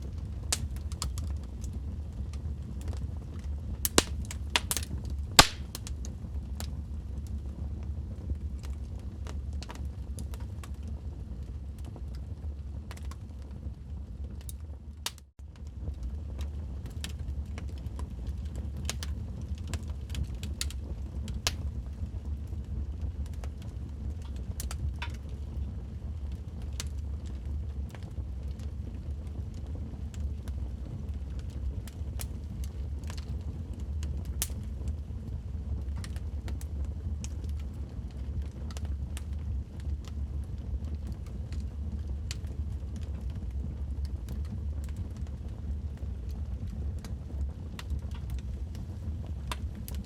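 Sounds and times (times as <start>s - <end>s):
logs crackling in fireplace: 0.0s - 50.0s
sharp pops: 3.9s - 4.8s, 5.4s - 5.8s
steady low rumble: 46.4s - 50.0s.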